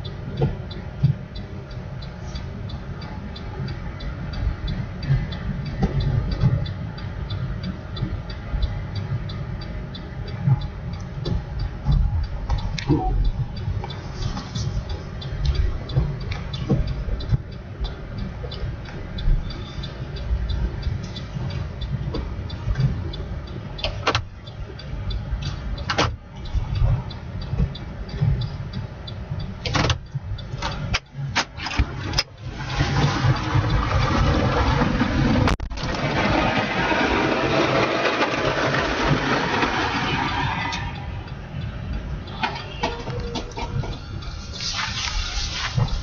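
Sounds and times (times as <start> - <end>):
fast regular ticking: 0.0 - 42.8
motor vehicle engine rumbling: 0.0 - 46.0
tyres rushing through slush: 32.4 - 40.8.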